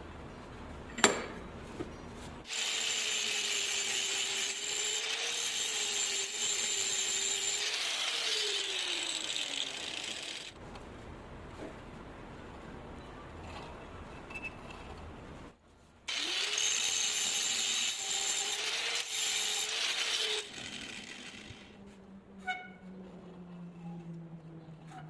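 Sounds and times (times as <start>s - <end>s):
power tool on metal: 2.5s - 10.6s, 16.1s - 21.8s.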